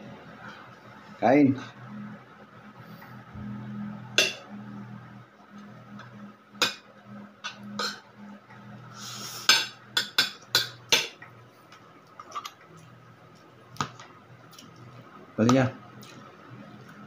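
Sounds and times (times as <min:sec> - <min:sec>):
steady low hum: 0:00.0 - 0:17.0
utensils clinking on plates: 0:07.4 - 0:08.0.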